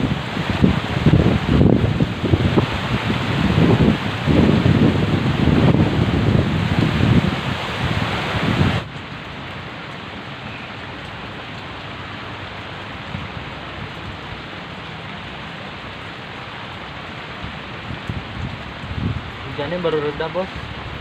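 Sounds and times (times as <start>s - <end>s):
wind buffeting microphone: 0.0s - 9.4s, 12.8s - 14.8s, 17.0s - 21.0s
heavy rain falling: 0.0s - 21.0s.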